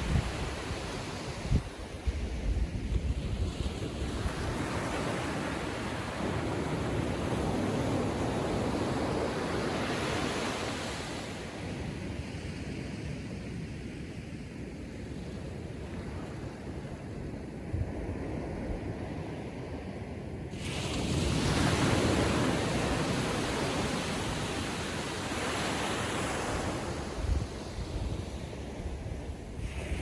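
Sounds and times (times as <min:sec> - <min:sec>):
surf washing onto beach: 0:20.5 - 0:30.0.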